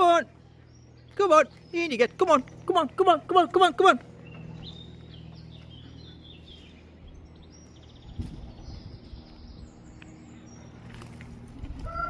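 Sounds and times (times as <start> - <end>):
small birds chirping: 0.0 - 12.0
steady low hum: 0.0 - 12.0
low rumble: 4.0 - 12.0.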